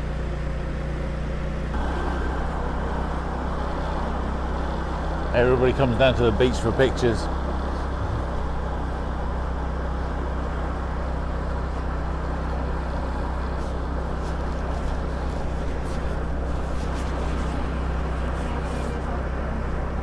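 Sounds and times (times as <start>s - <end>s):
motor scooter engine drone: 0.0s - 20.0s
wind and road noise: 1.7s - 20.0s.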